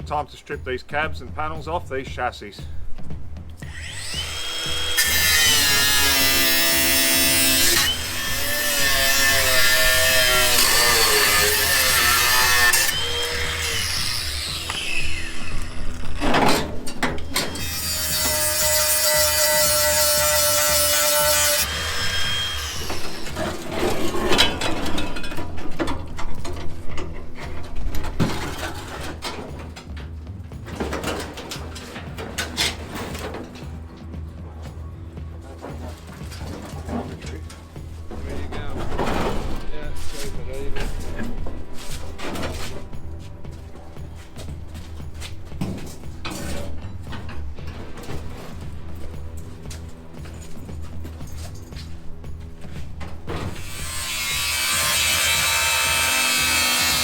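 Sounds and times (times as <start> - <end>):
power tool on metal: 3.6 - 23.8, 53.5 - 57.0.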